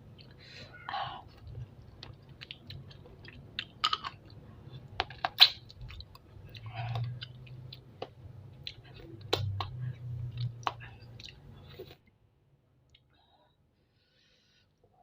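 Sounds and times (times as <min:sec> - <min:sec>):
chewing with wet crunches: 0:01.3 - 0:11.9.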